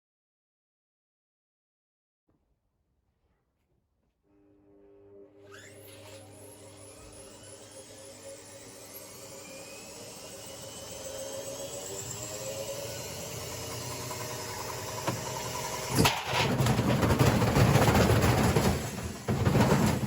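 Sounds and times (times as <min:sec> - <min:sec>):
washing machine motor whine: 0:04.3 - 0:20.0
washing machine banging and rattling: 0:14.8 - 0:20.0.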